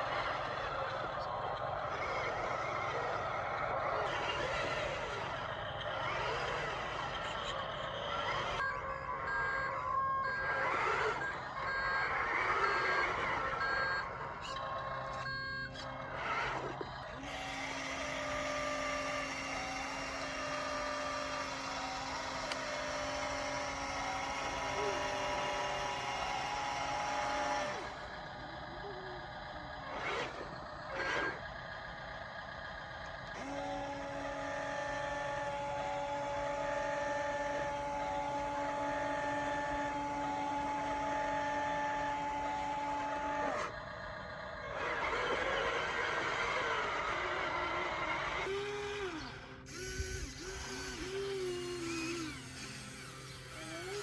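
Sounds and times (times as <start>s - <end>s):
electric motors whining: 0.0s - 54.0s.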